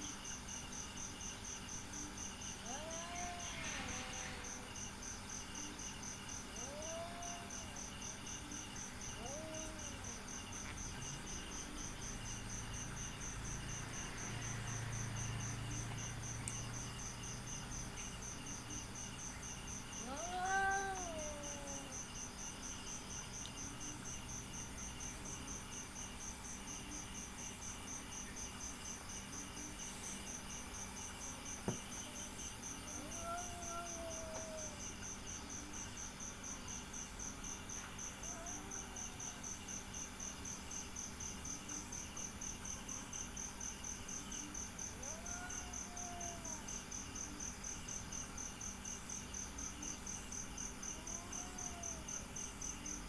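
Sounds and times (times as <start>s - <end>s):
crickets chirping: 0.0s - 53.0s
cat meowing: 2.6s - 4.2s, 6.6s - 7.7s, 9.2s - 10.2s, 20.0s - 22.0s, 32.8s - 34.9s, 38.2s - 39.4s, 44.9s - 46.6s, 50.9s - 52.0s.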